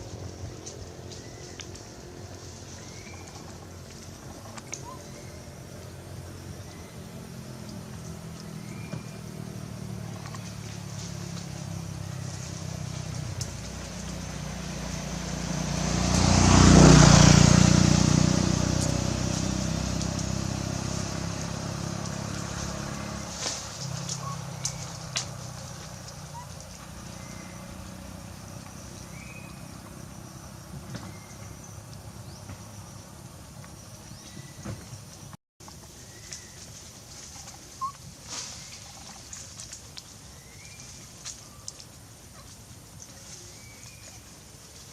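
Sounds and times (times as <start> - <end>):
motor vehicle passing by: 0.0 - 44.9.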